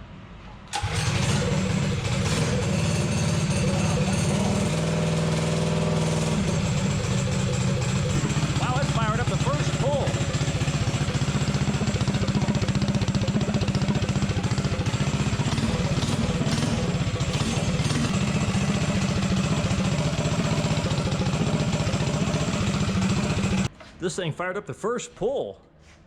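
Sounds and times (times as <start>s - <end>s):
small engine idling: 0.7s - 23.7s.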